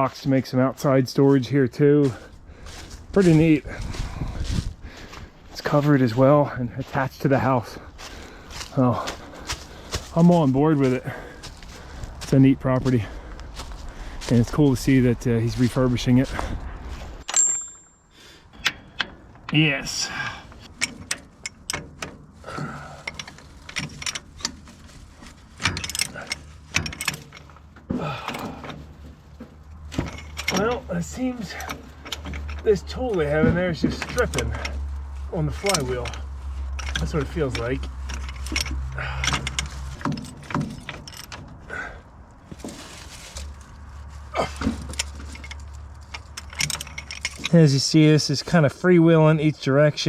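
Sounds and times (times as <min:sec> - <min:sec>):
hand tool ratcheting on metal: 0:17.2 - 0:29.2, 0:29.9 - 0:42.0, 0:44.3 - 0:49.6.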